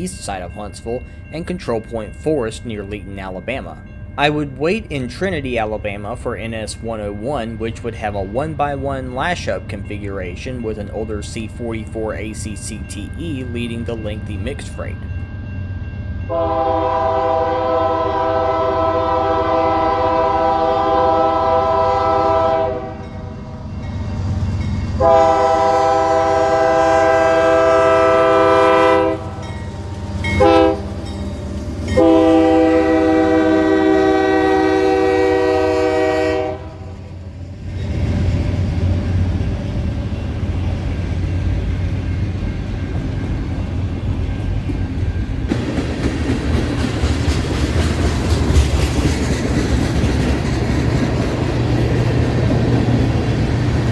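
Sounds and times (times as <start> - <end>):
train rumbling past: 0.0 - 53.9
locomotive air horn blowing: 16.3 - 23.1, 25.0 - 29.5, 30.2 - 30.9, 32.0 - 36.9.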